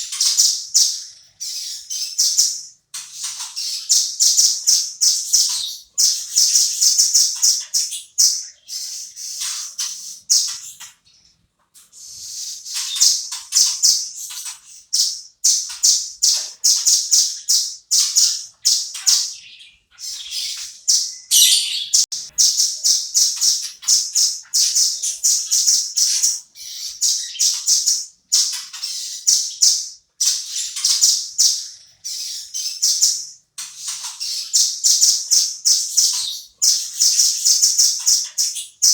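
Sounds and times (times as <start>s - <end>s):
bird calling in sharp high chips: 16.8s - 38.7s.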